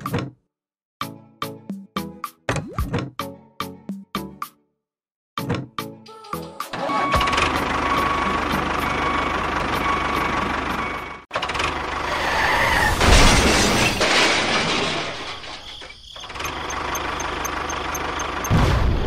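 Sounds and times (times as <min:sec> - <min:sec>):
tractor engine running: 0:06.5 - 0:12.1, 0:16.2 - 0:19.0.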